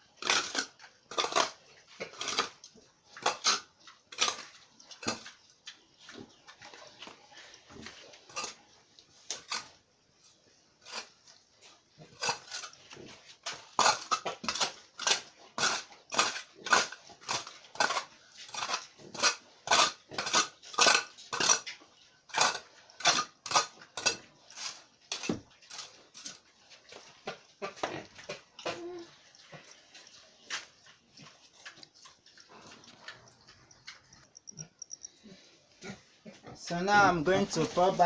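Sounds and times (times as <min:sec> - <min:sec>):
metal tool striking and scraping: 0:13.5 - 0:21.7.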